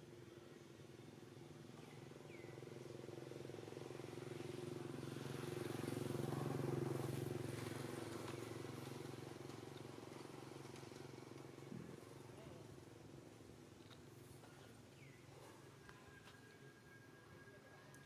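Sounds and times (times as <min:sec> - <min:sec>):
vehicle engine passing by: 0:03.2 - 0:11.7.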